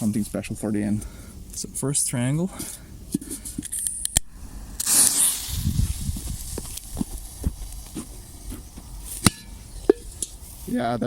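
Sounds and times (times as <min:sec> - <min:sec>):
firework click: 0:03.1 - 0:10.4
firework hissing: 0:03.7 - 0:10.7.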